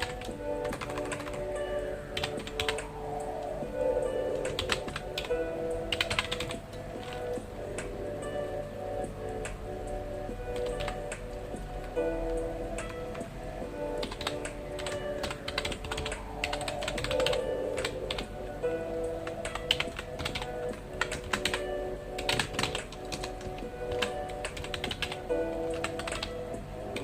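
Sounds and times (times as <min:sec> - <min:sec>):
typing on computer keyboard: 0:00.0 - 0:01.5, 0:02.2 - 0:02.9, 0:04.3 - 0:07.4, 0:10.6 - 0:11.4, 0:14.0 - 0:18.3, 0:19.2 - 0:27.0.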